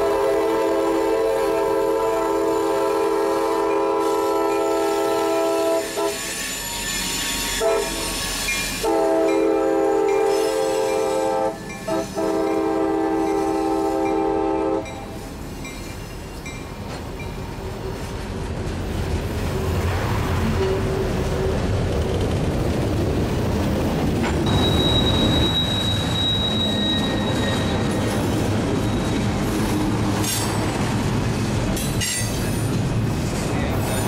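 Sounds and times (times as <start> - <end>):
locomotive air horn blasts: 0.0 - 6.4, 7.4 - 8.2, 8.8 - 15.2
train rumble and rail noise: 0.0 - 34.0.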